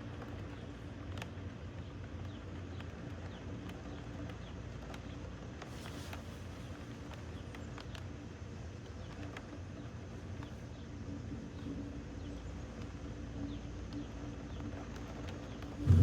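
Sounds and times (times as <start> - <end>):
low outdoor rumble: 15.5 - 16.0.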